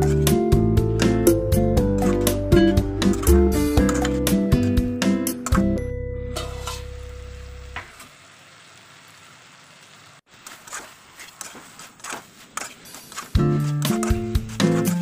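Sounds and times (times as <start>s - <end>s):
background music: 0.0s - 7.6s, 13.0s - 15.0s
metal spatula scraping a pan: 2.0s - 2.4s, 3.0s - 4.4s, 6.3s - 7.0s, 10.4s - 15.0s
vegetables sizzling in a pan: 6.3s - 13.6s.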